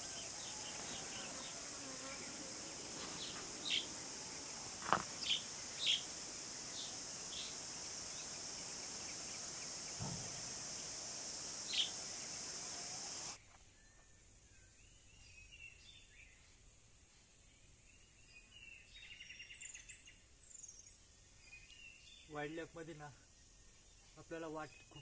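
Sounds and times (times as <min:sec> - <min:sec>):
high-pitched insect buzz: 0:00.0 - 0:13.4
bird chirps: 0:00.0 - 0:16.5.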